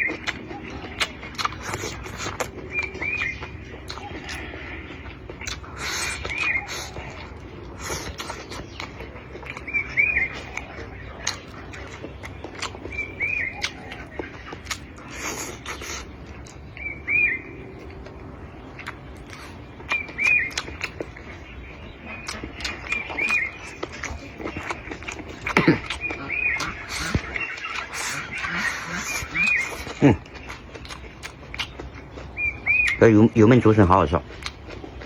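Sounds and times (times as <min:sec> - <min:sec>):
bird chirping: 0:00.0 - 0:35.0
eating clicks and smacks: 0:00.0 - 0:35.0.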